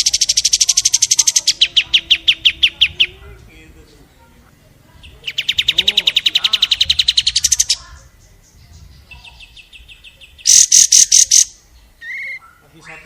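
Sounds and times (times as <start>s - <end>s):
loud sharp bird notes: 0.0s - 4.2s, 5.0s - 13.0s
songbird trilling: 0.0s - 13.0s.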